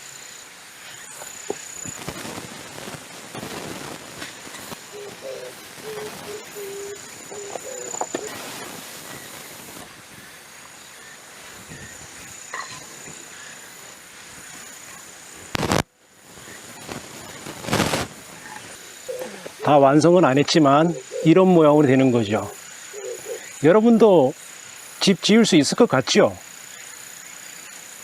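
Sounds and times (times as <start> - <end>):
steady background hiss: 0.0 - 28.0
loud sharp noises: 1.0 - 10.5, 15.5 - 19.8.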